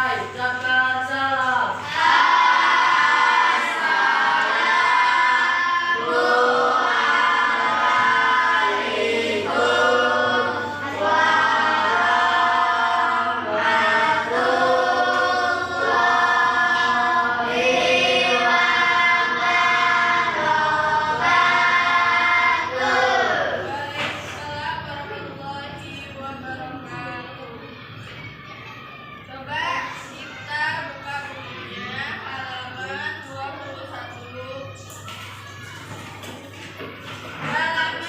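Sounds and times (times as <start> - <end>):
children chanting in unison: 0.0 - 25.2.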